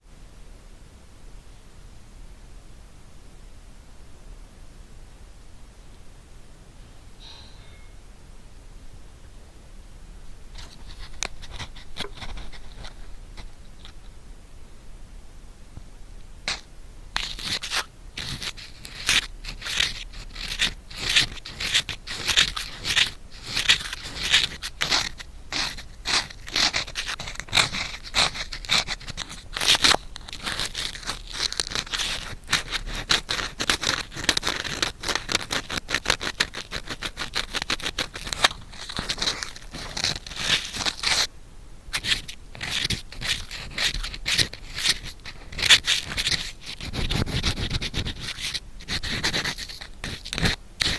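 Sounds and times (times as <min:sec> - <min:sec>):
ear pick scraping microphone: 0:17.2 - 0:41.3, 0:41.9 - 0:50.9.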